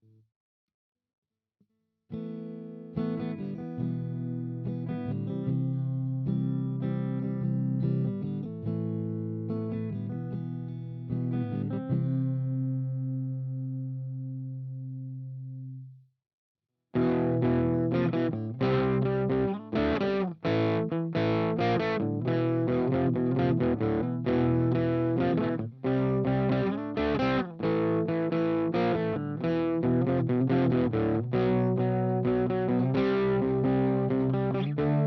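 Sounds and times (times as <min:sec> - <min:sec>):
distorted electric guitar riffs: 0:17.0 - 0:35.0.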